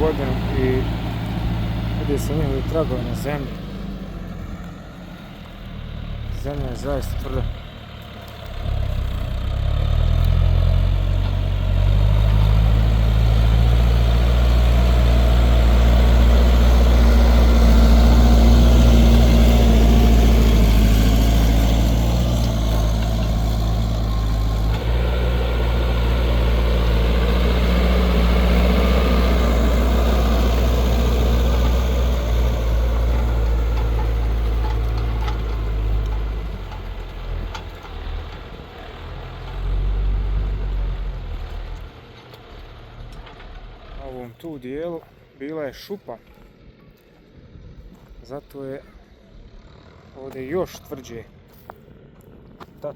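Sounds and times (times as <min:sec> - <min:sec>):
tractor diesel engine working hard: 0:00.0 - 0:44.8.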